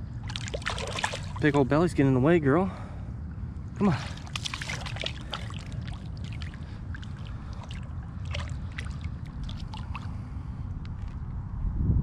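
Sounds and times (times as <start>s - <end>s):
steady low rumble: 0.0s - 12.0s
water splashes and drips: 0.2s - 1.7s, 3.8s - 10.3s.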